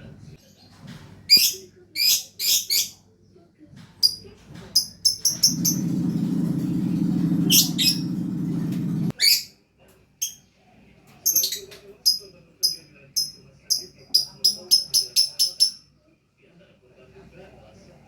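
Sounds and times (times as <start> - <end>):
lovebird chirping: 4.8 - 9.5
steady low drone: 5.5 - 9.1.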